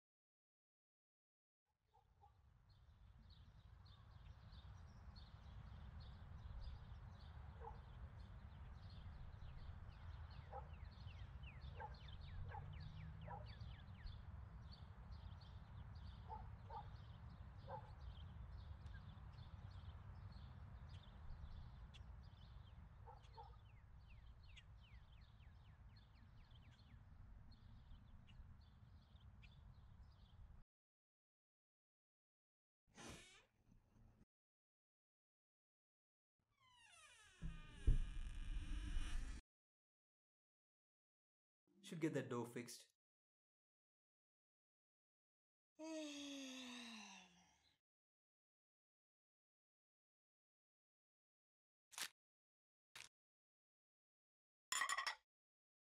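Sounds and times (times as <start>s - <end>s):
small birds chirping: 2.7s - 30.6s.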